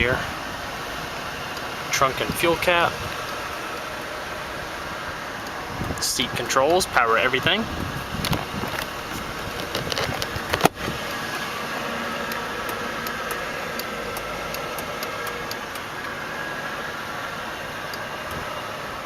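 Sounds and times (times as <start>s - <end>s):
car engine idling: 0.0s - 19.0s
faint regular ticking: 12.2s - 16.2s.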